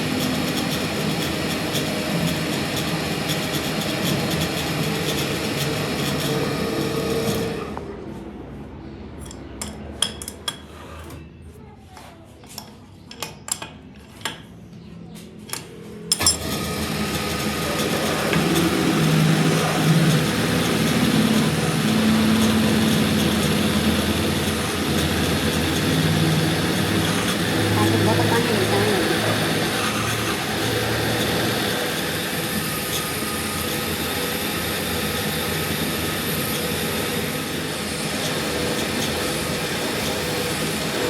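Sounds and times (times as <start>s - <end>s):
continuous machine noise: 0.0s - 41.0s
hand tools clinking on metal: 15.5s - 16.5s.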